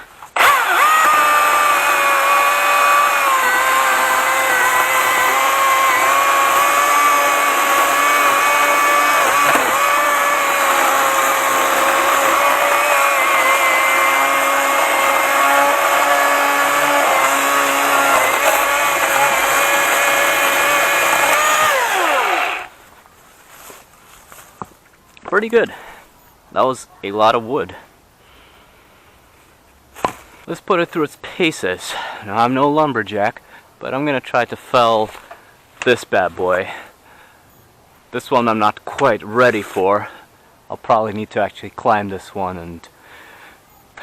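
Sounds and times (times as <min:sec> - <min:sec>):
battery chainsaw cutting wood: 0:00.3 - 0:22.8.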